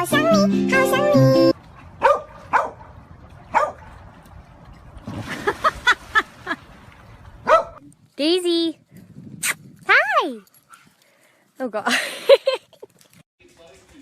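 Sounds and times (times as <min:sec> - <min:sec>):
dog yipping: 0:02.0 - 0:02.8, 0:03.5 - 0:03.8, 0:07.5 - 0:07.8.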